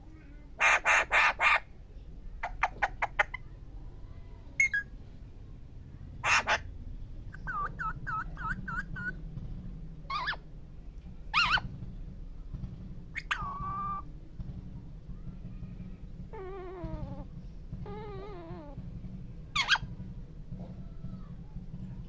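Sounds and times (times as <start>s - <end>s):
steady low hum: 0.0s - 22.0s
parrot screeching: 0.6s - 1.6s, 6.2s - 6.6s, 10.1s - 10.4s, 11.3s - 11.6s, 13.2s - 14.0s, 19.6s - 19.8s.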